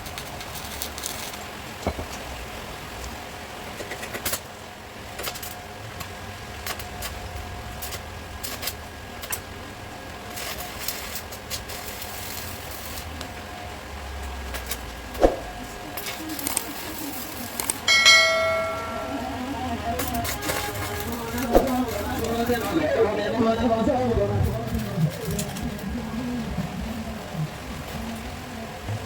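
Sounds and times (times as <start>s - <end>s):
metal clanging and ringing: 17.9s - 21.1s.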